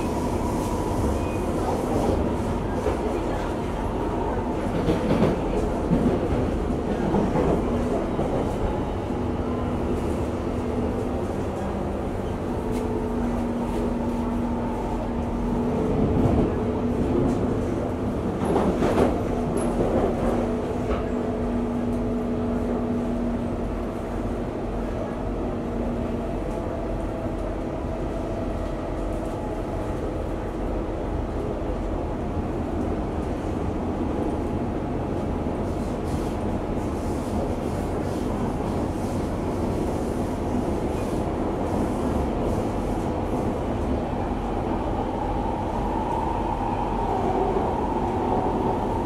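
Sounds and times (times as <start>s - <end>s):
train rumble inside carriage: 0.0s - 49.0s.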